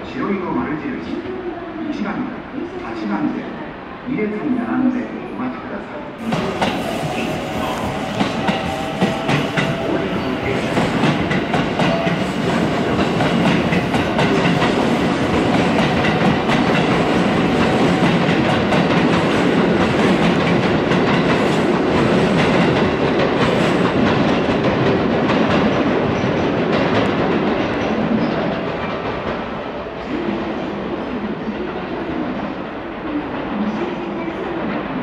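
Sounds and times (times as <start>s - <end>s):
train wheels clattering: 6.2s - 29.6s.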